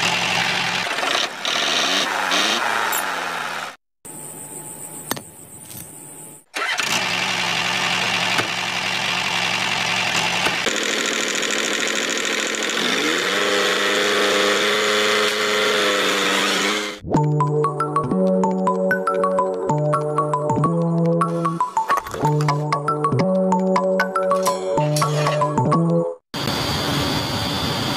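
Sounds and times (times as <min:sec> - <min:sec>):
engine running: 0:00.0 - 0:03.8, 0:06.5 - 0:17.0.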